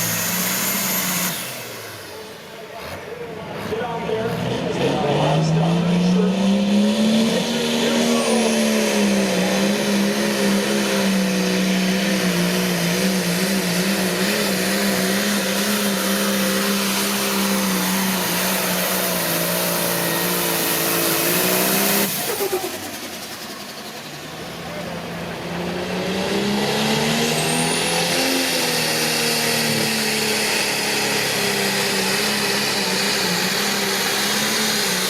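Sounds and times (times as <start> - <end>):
diesel tractor engine at high revs: 0.0 - 35.0.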